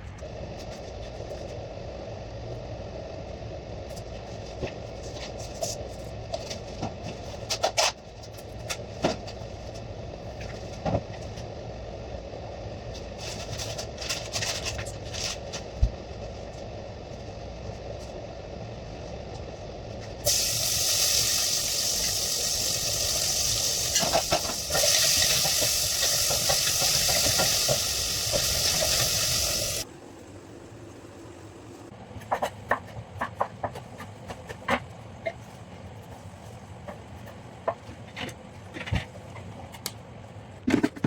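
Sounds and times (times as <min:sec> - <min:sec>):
low steady rumble: 0:00.0 - 0:20.3
food sizzling in a hot pan: 0:20.2 - 0:29.8.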